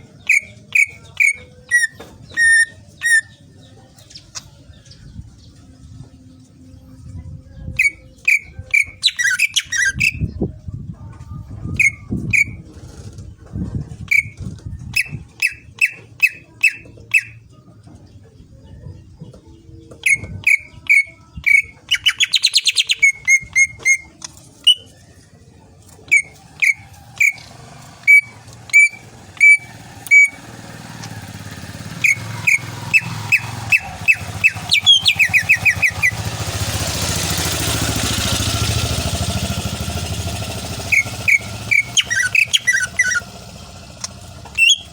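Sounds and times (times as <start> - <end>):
low engine rumble: 0.0 - 44.9
bird whistling and trilling: 0.2 - 3.4, 7.7 - 10.4, 11.7 - 12.7, 14.1 - 17.4, 19.9 - 25.1, 26.1 - 30.6, 31.6 - 37.3, 39.9 - 44.9.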